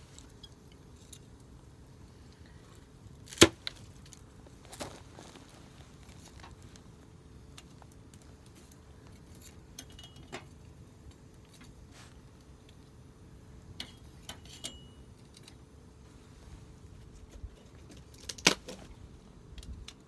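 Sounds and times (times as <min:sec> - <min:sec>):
campfire crackling and popping: 0:00.0 - 0:14.4.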